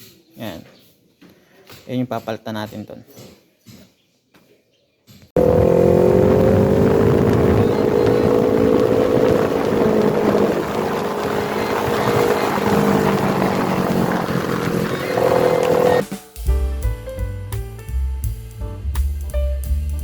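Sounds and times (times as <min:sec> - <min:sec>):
road noise: 0:05.4 - 0:16.0
vehicle engine droning: 0:05.4 - 0:16.0.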